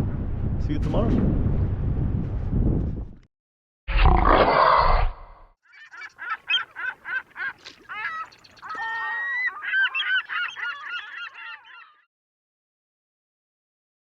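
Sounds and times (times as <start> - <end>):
bird honking: 5.7 - 12.0.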